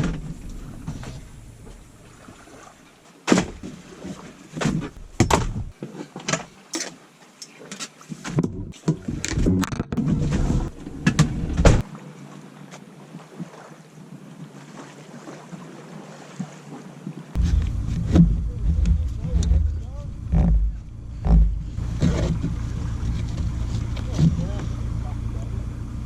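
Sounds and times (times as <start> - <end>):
low steady rumble: 0.0 - 2.3, 5.0 - 5.8, 17.4 - 26.0
irregular knocks and thumps: 4.6 - 5.8, 17.4 - 22.6.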